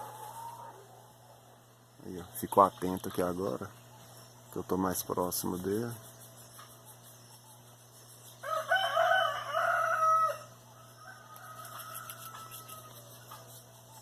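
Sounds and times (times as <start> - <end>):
rooster crowing: 8.4 - 13.2.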